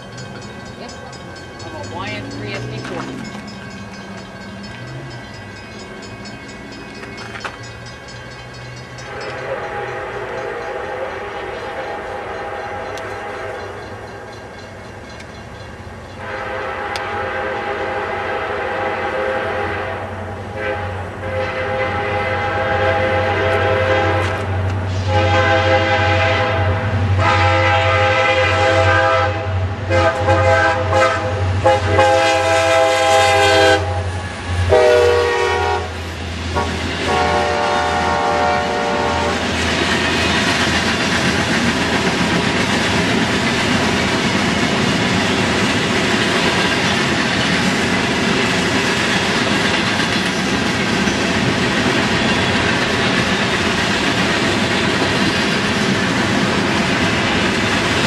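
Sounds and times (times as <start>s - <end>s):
locomotive engines low drone: 0.0s - 27.2s
train wheels rumbling on rails: 0.0s - 58.0s
diesel locomotive air horn blasts: 9.1s - 13.8s, 16.2s - 39.4s.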